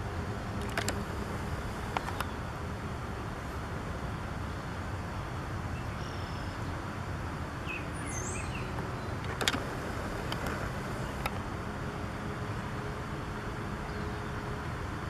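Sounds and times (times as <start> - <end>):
outdoor background rumble: 0.0 - 15.0
sharp clicks: 0.6 - 2.3, 8.8 - 11.4
faint bird chirps: 5.8 - 6.6.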